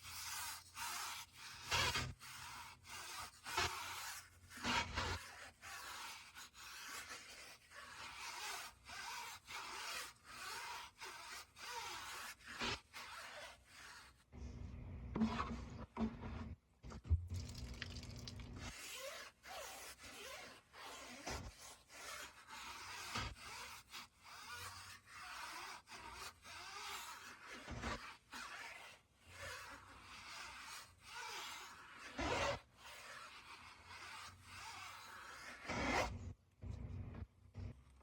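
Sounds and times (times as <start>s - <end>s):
hand scrubbing a surface: 0.0s - 1.5s, 2.2s - 4.6s, 5.2s - 14.2s, 17.4s - 27.5s.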